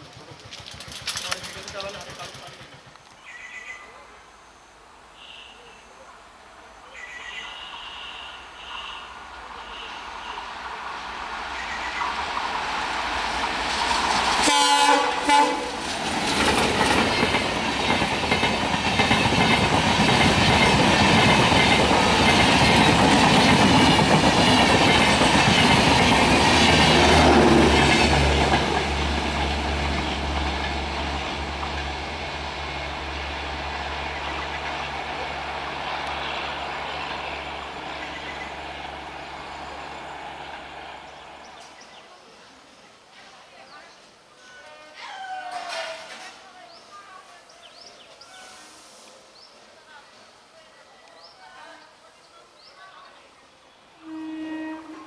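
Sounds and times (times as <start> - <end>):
wheels clattering over rail joints: 0.0 - 3.0
train passing: 0.0 - 3.6, 7.0 - 44.6, 52.9 - 55.0
locomotive horn blast: 14.4 - 15.8, 54.0 - 55.0.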